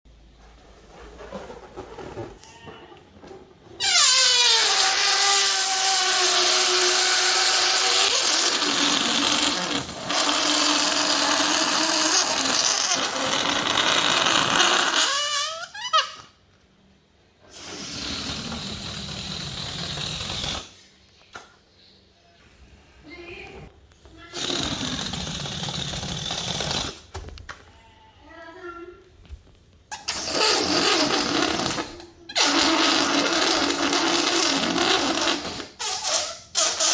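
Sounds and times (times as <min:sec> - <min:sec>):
balloon air hissing squeal: 0:03.8 - 0:16.3, 0:17.4 - 0:20.8, 0:24.2 - 0:27.1, 0:29.9 - 0:36.9.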